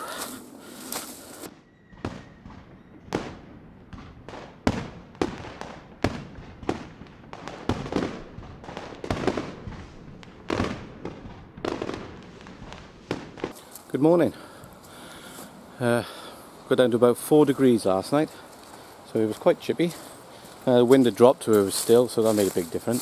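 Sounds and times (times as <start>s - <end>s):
fireworks bangs: 1.4s - 13.8s.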